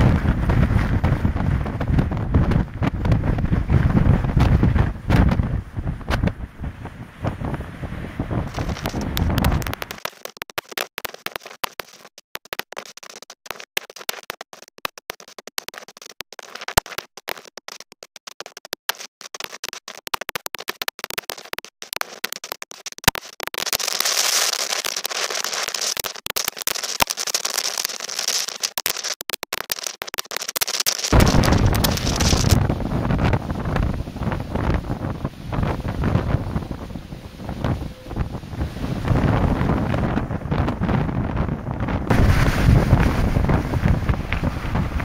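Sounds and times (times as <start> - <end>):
wind buffeting microphone: 0.0 - 9.9, 31.1 - 45.0.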